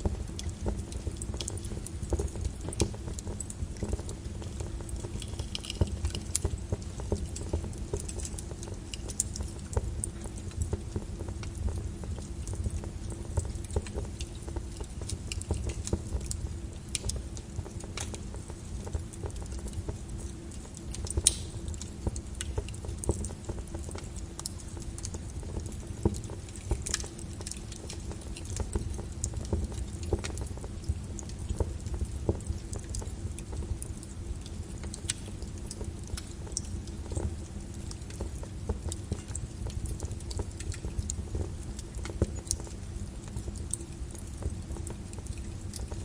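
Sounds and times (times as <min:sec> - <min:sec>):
crackles and pops: 0:00.0 - 0:46.0
lava low rumble: 0:00.0 - 0:46.0.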